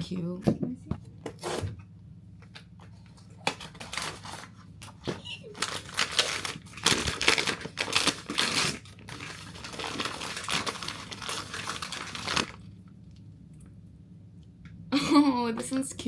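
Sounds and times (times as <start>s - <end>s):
toy packaging crinkling: 3.4s - 12.7s.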